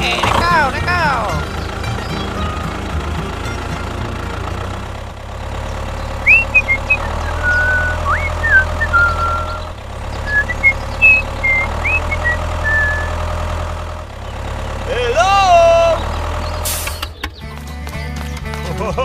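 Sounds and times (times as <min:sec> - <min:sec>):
small tractor engine droning: 0:00.0 - 0:19.0
high chirps and whistles: 0:06.2 - 0:13.2.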